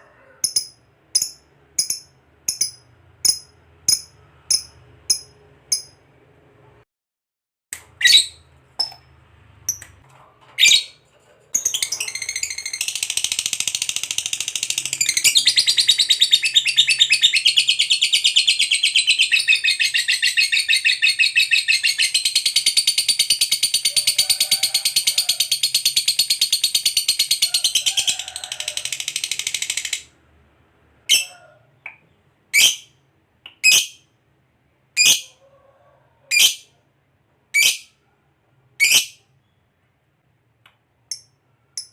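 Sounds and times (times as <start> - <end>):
lovebird shrill chirps: 33.6 - 34.0, 37.6 - 38.0, 38.8 - 39.2.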